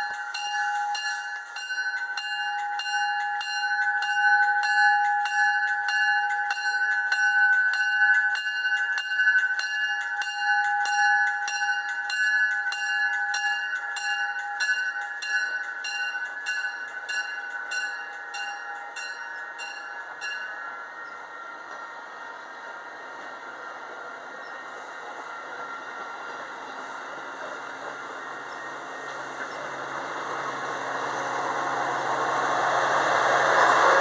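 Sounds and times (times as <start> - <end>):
railroad crossing bell ringing: 0.0 - 34.0.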